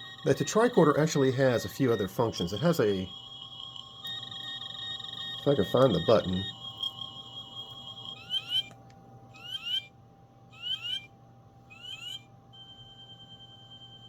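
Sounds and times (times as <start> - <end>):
steady high beep tone: 0.0 - 8.8
paired rising electronic chirps: 0.0 - 9.9, 10.5 - 11.1, 11.7 - 14.0.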